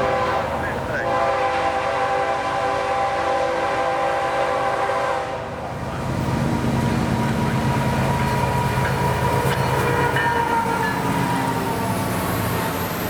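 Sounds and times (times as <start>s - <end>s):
locomotive air horn chord: 0.0s - 5.5s
train rumbling by: 0.0s - 13.0s.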